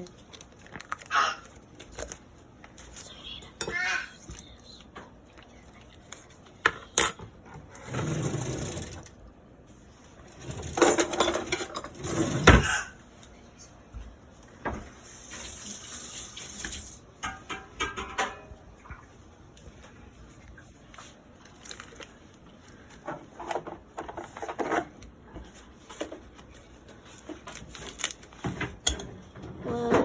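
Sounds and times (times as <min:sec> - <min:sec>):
utensils and dishes knocking: 0:17.2 - 0:18.5.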